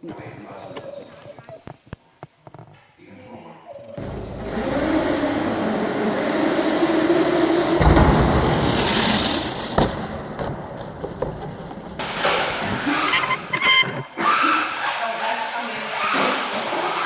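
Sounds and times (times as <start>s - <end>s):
tyre and drivetrain noise: 4.0s - 5.4s, 12.0s - 17.0s
rc car motor whine: 12.0s - 17.0s.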